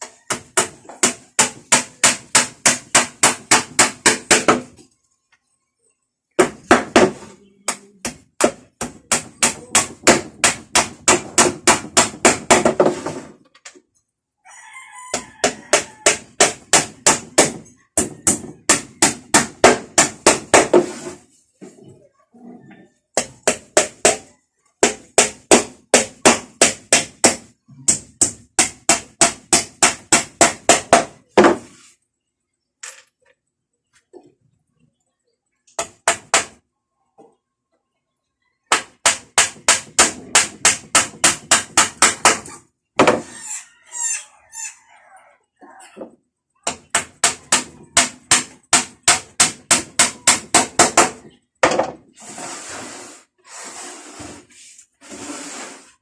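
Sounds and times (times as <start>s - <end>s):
rooster crowing: 14.4s - 16.3s, 43.2s - 46.0s.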